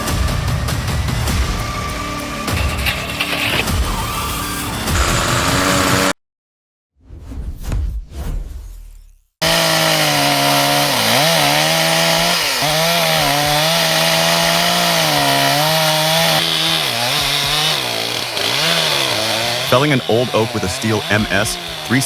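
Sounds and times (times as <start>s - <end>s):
chainsaw cutting wood: 2.4s - 6.1s, 9.4s - 22.0s.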